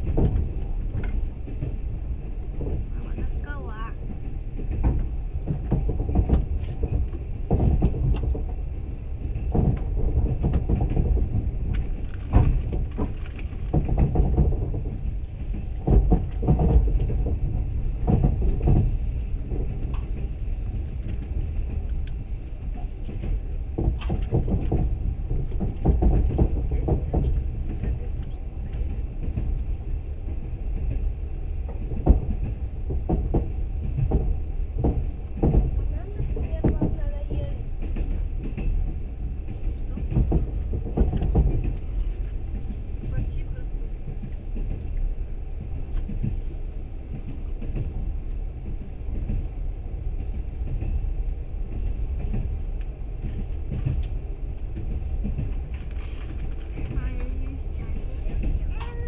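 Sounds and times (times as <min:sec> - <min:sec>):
knocks and rattles: 0:00.0 - 0:46.4
train carriage rumble: 0:00.0 - 0:59.0.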